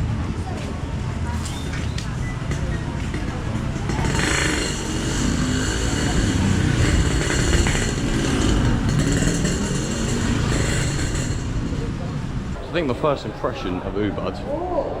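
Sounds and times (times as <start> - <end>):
motorbike engine running: 2.3 - 12.4.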